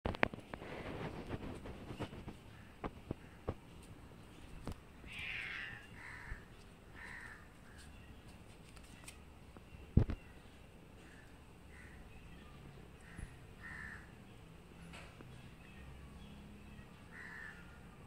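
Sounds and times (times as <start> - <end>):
crows cawing: 5.1 - 7.8, 11.0 - 12.1, 13.0 - 14.2, 17.1 - 17.8.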